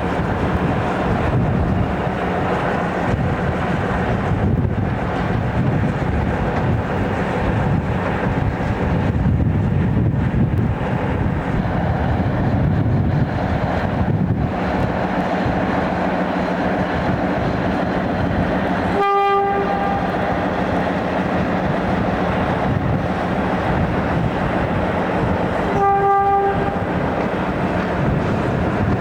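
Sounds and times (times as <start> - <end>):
train rumbling: 0.0 - 29.0
train horn blasts: 18.9 - 20.4, 25.5 - 27.0.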